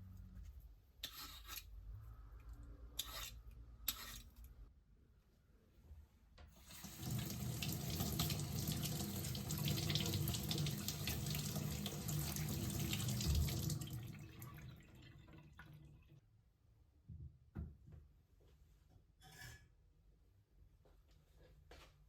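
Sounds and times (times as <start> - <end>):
tap water running into sink: 6.6 - 16.1.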